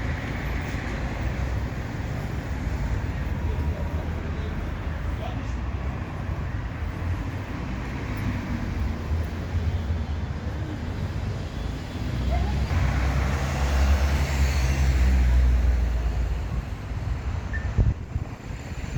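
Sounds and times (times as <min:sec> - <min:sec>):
vehicle passing close by: 0:12.5 - 0:16.0.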